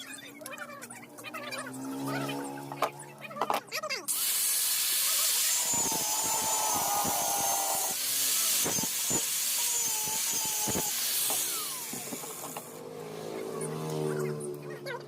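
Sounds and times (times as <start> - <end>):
motor whine: 4.1 - 14.6
power tool grinding a blade: 4.1 - 14.6.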